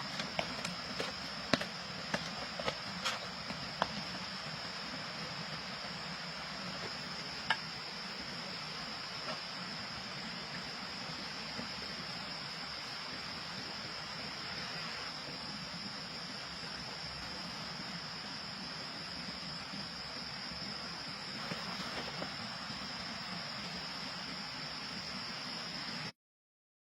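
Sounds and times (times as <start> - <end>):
steady hiss: 0.0 - 26.1.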